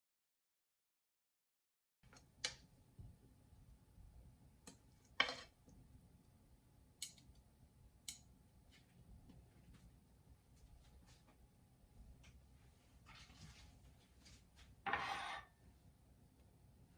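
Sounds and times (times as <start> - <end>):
short scrape: 14.9 - 15.5.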